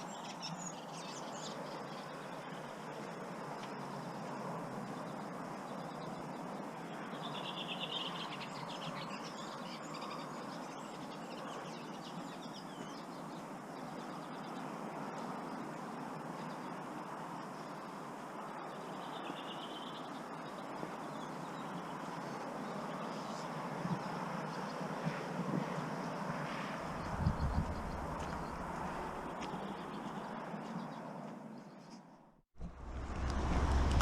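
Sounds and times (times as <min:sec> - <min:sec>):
water noise: 0:32.6 - 0:34.0.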